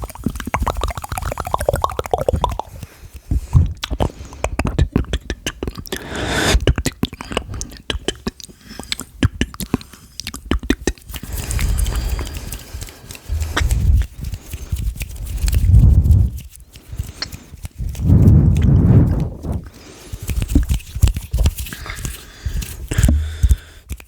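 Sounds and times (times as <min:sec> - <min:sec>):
wet lip and tongue clicks: 0:00.0 - 0:24.0
breathy hiss: 0:05.9 - 0:06.6, 0:21.8 - 0:23.9.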